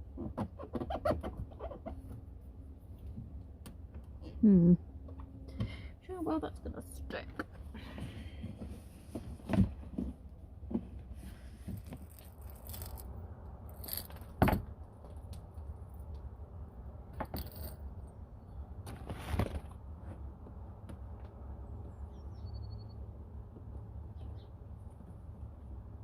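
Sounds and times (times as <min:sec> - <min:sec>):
metal clinks and scrapes: 0:11.5 - 0:13.1, 0:13.7 - 0:14.4, 0:17.2 - 0:17.9.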